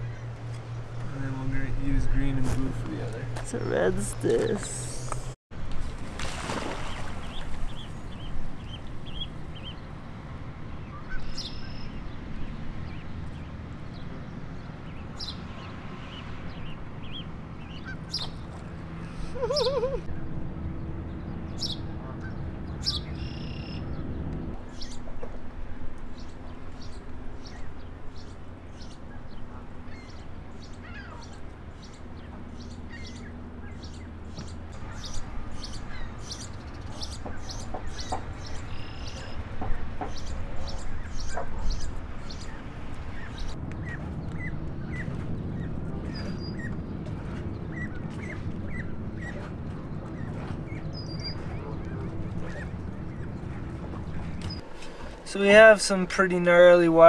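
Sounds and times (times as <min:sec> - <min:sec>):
birds chirping: 0:00.0 - 0:05.4, 0:06.5 - 0:57.0
steady low hum: 0:23.8 - 0:57.0.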